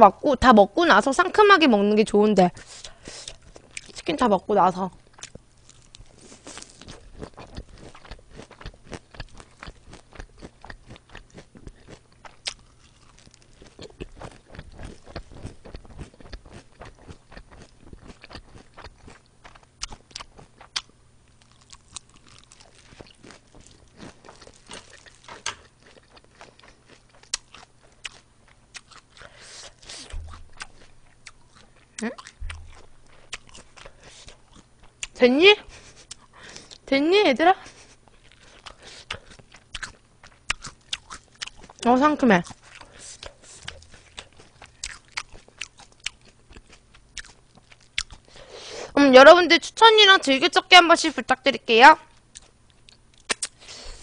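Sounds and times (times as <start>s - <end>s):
crunching lettuce leaves: 21.4s - 28.0s.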